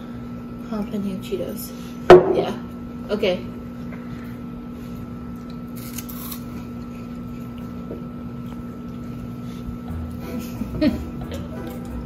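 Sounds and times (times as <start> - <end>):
steady background hum: 0.0 - 12.0
crunching and chewing snacks: 5.4 - 9.2.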